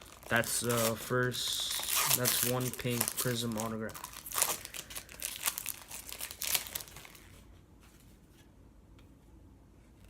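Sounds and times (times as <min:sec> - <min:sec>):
plastic wrapper crinkling and tearing: 0:00.0 - 0:07.4.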